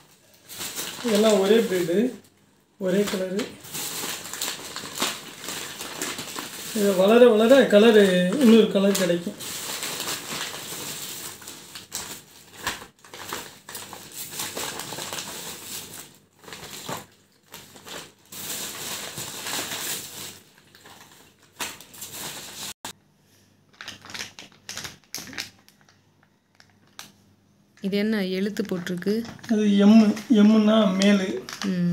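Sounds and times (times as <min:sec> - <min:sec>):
plastic bags crinkling: 0:00.0 - 0:02.2, 0:02.8 - 0:22.8, 0:23.7 - 0:27.2, 0:28.7 - 0:31.9.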